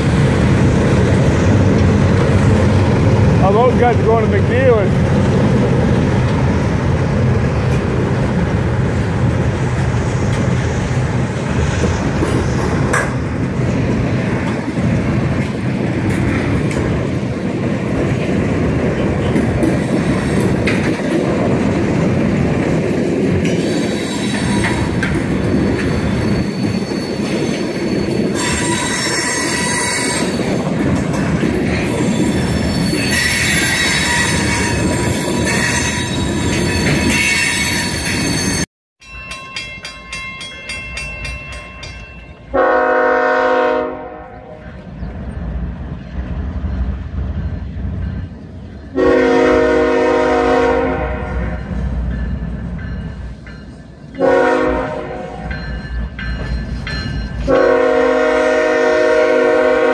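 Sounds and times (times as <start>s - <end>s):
steel wheels rumbling on rail: 0.0s - 59.9s
high-pitched wheel squeal: 25.8s - 30.4s, 31.9s - 38.6s.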